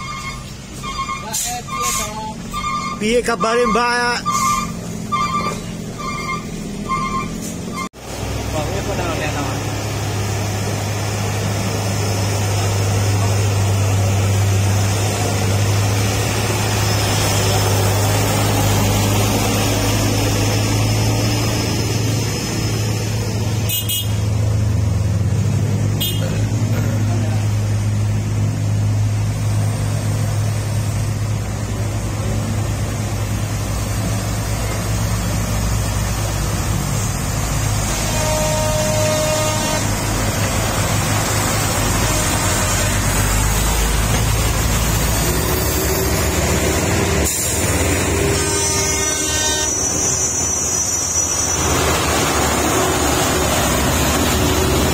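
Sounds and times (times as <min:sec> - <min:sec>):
horn toot: 0:00.0 - 0:07.9, 0:23.6 - 0:24.3, 0:26.0 - 0:26.5, 0:37.8 - 0:40.1, 0:48.1 - 0:51.4
diesel truck engine drone: 0:00.0 - 0:54.9
road noise: 0:00.0 - 0:54.9.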